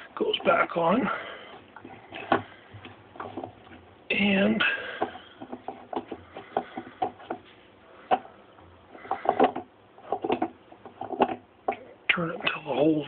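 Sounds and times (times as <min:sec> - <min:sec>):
sharp clicks and knocks: 0:05.0 - 0:11.9.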